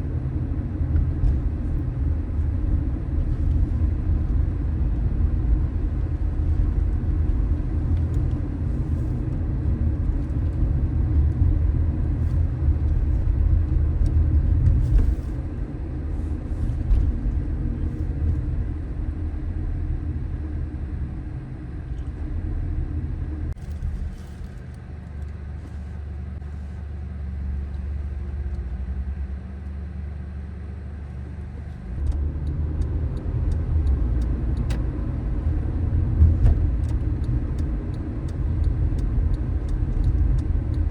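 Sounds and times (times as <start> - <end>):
car road and tyre rumble: 0.0 - 40.9.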